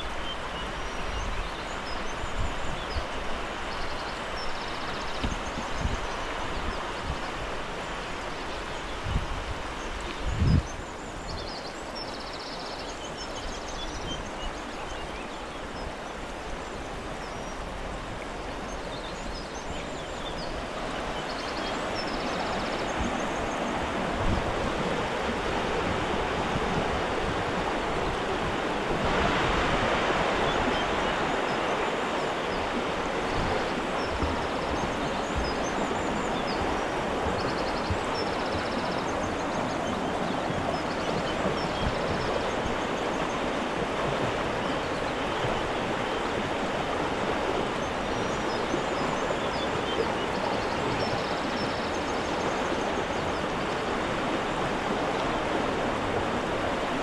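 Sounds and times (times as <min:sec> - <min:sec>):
birds chirping: 0:00.0 - 0:17.6, 0:18.4 - 0:43.7
stream water rushing: 0:00.0 - 0:57.0.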